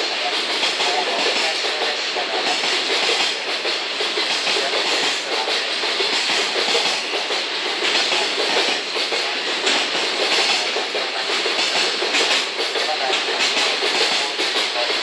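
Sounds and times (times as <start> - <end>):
train wheels clattering over joints: 0.0 - 15.0.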